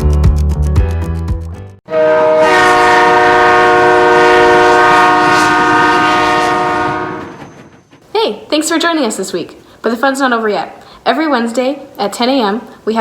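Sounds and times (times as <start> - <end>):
train horn blast: 1.9 - 7.5.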